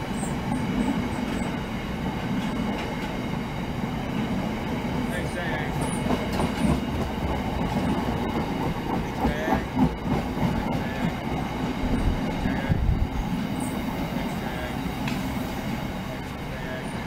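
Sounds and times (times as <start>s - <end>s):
train wheels rumbling on rail: 0.0s - 17.0s
wagons knocking and clattering: 5.7s - 10.6s.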